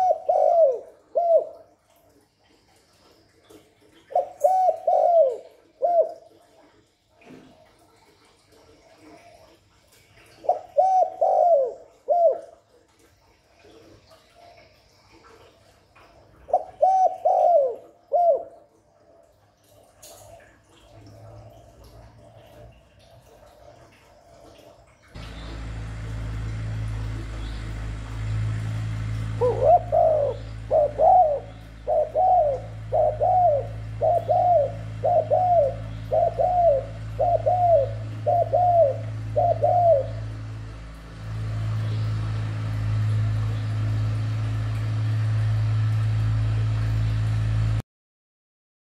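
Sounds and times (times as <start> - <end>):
dove cooing: 0.0 - 1.8, 3.9 - 6.7, 10.3 - 12.7, 16.5 - 18.8, 23.6 - 41.8
steady low hum: 25.0 - 47.8.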